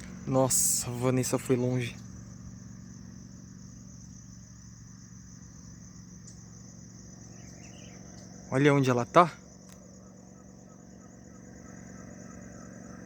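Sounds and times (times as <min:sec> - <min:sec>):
high-pitched insect trill: 0:00.0 - 0:13.0
steady low hum: 0:00.0 - 0:13.0.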